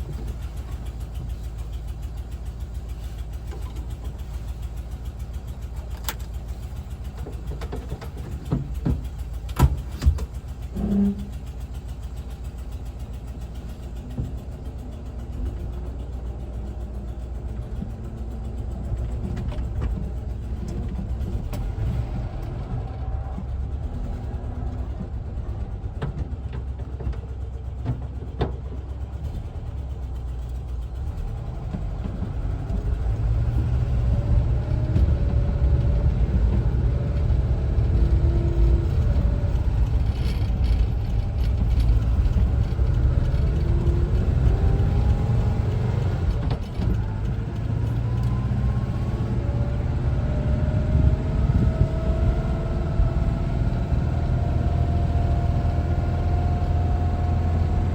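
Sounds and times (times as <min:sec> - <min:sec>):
van engine running: 0:00.0 - 0:57.9
rising engine whine: 0:31.3 - 0:57.9.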